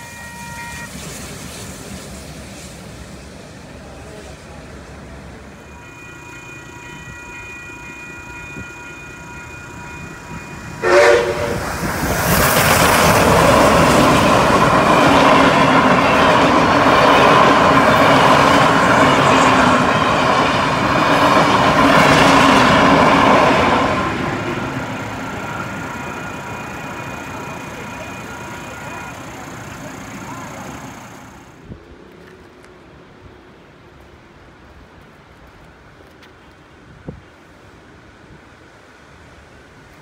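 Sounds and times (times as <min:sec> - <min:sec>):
train whistle blast: 0:00.0 - 0:01.2, 0:05.6 - 0:11.9
train rumbling over crossing: 0:00.0 - 0:32.2
level crossing bells ringing: 0:05.6 - 0:10.8, 0:23.8 - 0:31.4.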